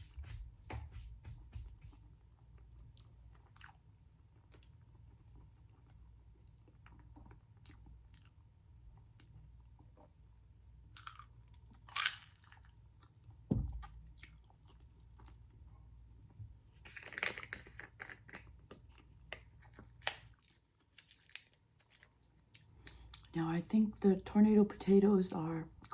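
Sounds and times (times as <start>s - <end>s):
person chewing crispy food: 2.6s - 10.4s, 11.0s - 15.7s, 17.8s - 23.3s.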